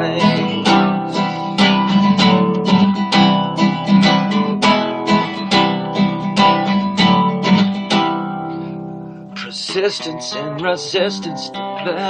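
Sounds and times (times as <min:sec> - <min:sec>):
person singing: 0:00.0 - 0:03.0, 0:09.3 - 0:12.0
acoustic guitar strumming: 0:00.0 - 0:12.0.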